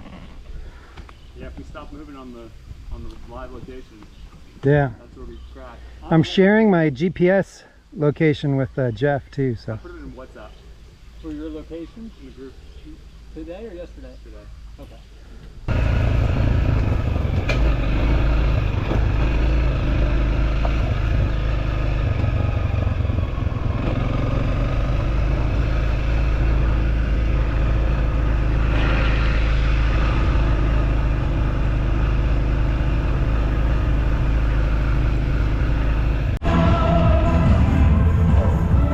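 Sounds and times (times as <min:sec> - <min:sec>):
motorcycle engine: 0:15.7 - 0:38.9.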